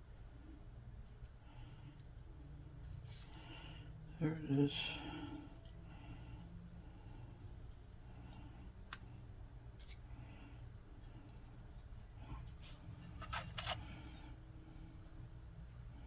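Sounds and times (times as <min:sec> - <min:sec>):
steady low hum: 0:00.0 - 0:16.0
small parts clicking and scraping: 0:08.2 - 0:11.7, 0:12.4 - 0:14.3.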